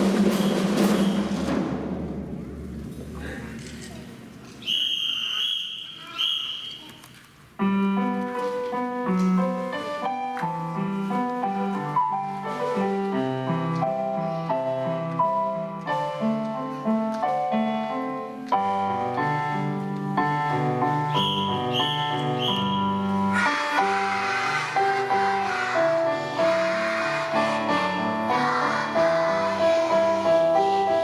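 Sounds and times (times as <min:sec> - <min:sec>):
high steady whistle-like tone: 0:04.6 - 0:07.0, 0:21.2 - 0:23.0
piano melody: 0:07.6 - 0:31.0.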